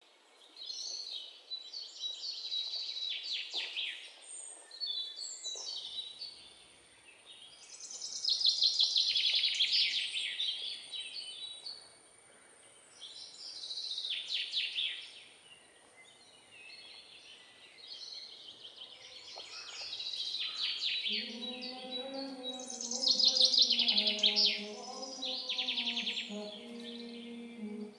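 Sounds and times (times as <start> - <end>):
birds chirping trills: 19.2 - 27.9.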